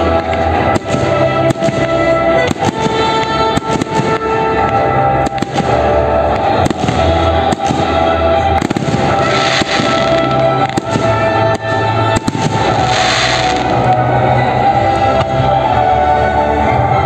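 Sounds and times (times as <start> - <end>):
fireworks bangs and crackling: 0.0 - 15.8
music: 0.0 - 17.0.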